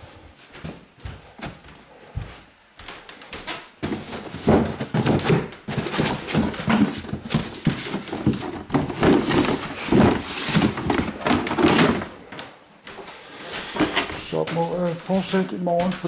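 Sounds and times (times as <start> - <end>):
rustling and crumpling of packing: 3.8 - 12.4.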